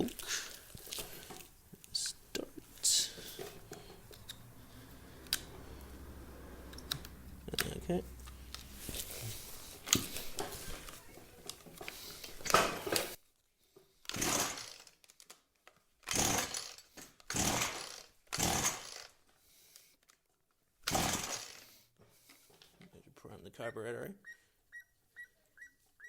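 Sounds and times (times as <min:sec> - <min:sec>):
recoil starter cord pulls: 0:05.1 - 0:05.9, 0:14.1 - 0:15.2, 0:16.0 - 0:19.2, 0:20.9 - 0:21.6.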